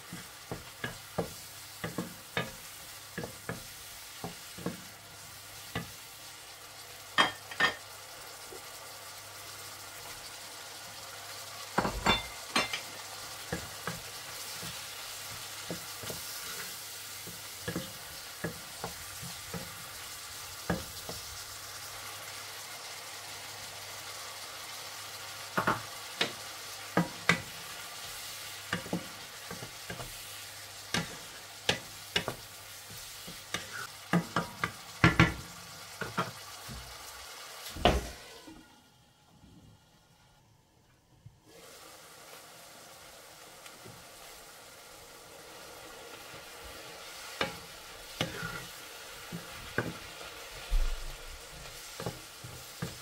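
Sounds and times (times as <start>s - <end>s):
food sizzling in a wok: 0.0s - 40.7s, 41.4s - 53.0s.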